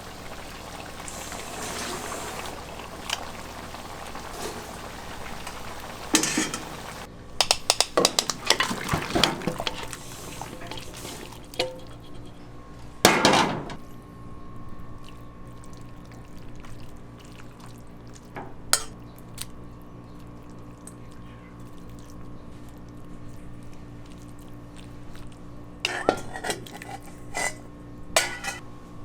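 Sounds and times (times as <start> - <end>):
liquid splashing or pouring: 0.0 - 7.1, 8.3 - 11.6
utensils and dishes knocking: 6.1 - 6.8, 7.4 - 9.9, 28.2 - 28.6.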